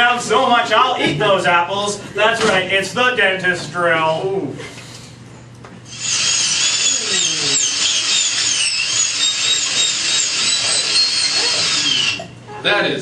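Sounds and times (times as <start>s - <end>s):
dentist's drill whining: 5.9s - 12.4s.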